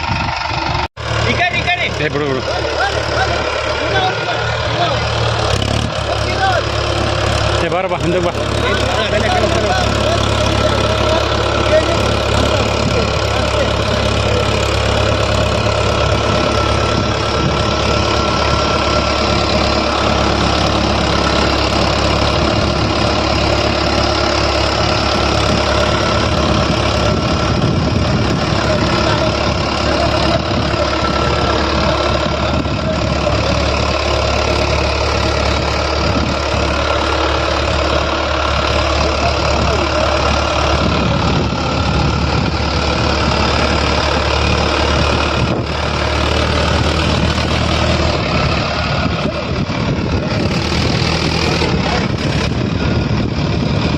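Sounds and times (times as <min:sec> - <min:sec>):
tractor engine droning: 0:00.0 - 0:53.9.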